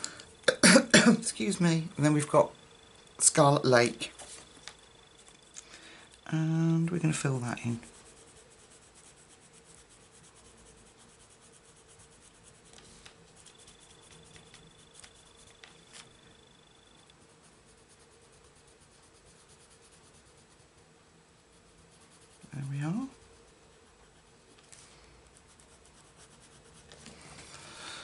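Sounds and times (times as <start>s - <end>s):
pencil scratching on paper: 6.9s - 27.3s.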